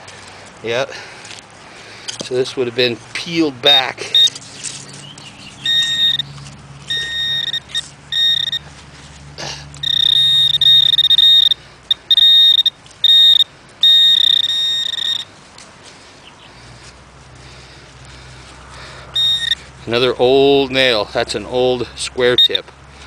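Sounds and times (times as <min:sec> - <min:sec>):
metal detector tone bursts: 0:04.1 - 0:04.4, 0:05.6 - 0:06.3, 0:06.9 - 0:08.7, 0:09.8 - 0:15.3, 0:19.2 - 0:19.6.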